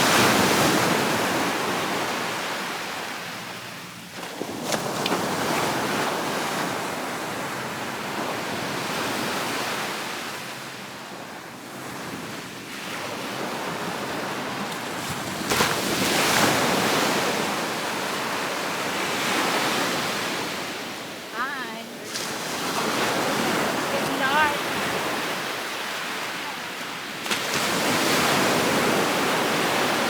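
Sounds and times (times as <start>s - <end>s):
surf washing onto beach: 0.0s - 3.4s, 4.1s - 30.0s.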